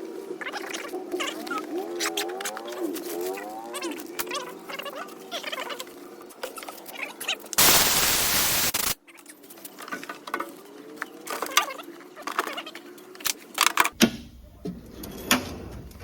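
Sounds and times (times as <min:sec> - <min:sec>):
compressed air hissing: 0:07.6 - 0:09.0.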